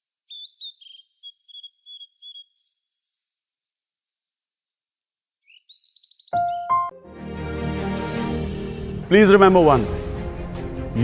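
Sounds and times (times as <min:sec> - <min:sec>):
small birds chirping: 0:00.0 - 0:06.9.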